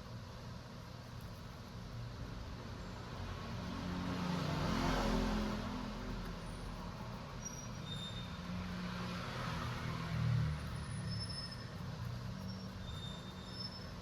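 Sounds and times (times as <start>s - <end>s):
road traffic rumble: 0.0s - 14.0s
passing vehicle: 3.1s - 14.0s.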